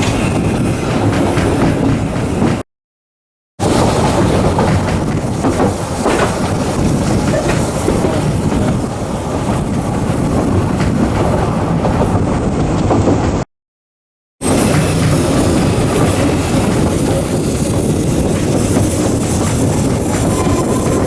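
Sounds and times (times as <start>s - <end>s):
train wheels rumbling on track: 0.0s - 2.6s, 3.6s - 13.5s, 14.4s - 21.0s.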